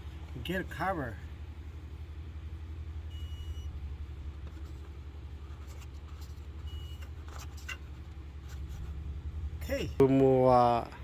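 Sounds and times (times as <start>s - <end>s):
faint high beeps: 3.1s - 3.7s.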